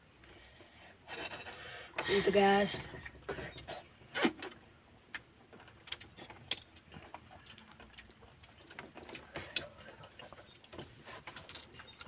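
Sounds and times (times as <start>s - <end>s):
mouth clicks and chewing smacks: 5.1s - 12.0s.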